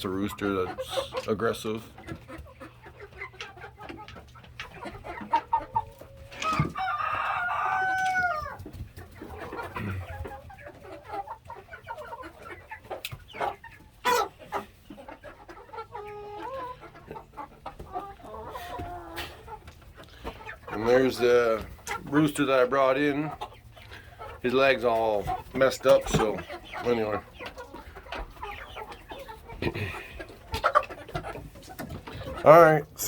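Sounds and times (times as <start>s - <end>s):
chickens clucking: 0.0s - 33.0s
rooster crowing: 6.4s - 8.6s.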